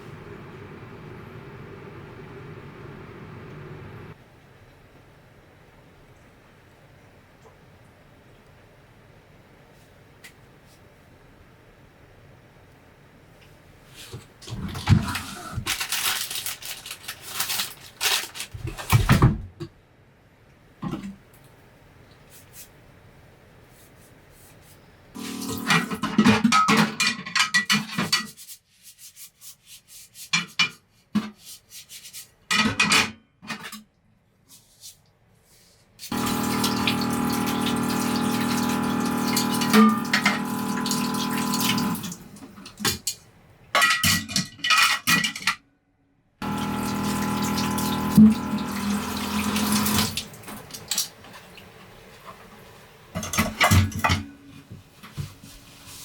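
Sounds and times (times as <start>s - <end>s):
water running: 0.0s - 4.2s, 36.1s - 42.8s, 46.4s - 53.6s.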